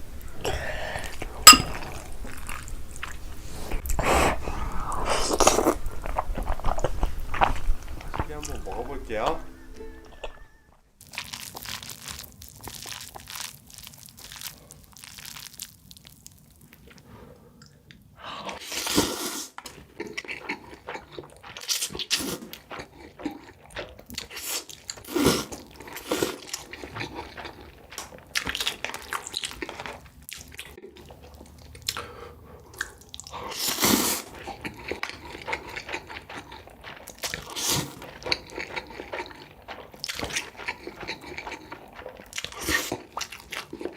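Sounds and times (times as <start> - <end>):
chewing noodles: 1.0 - 9.0, 11.0 - 43.9.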